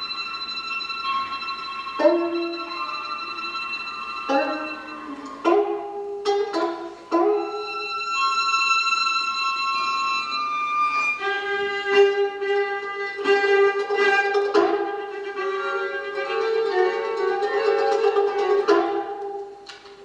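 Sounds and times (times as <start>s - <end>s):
bowed string instrument: 0.0s - 20.0s.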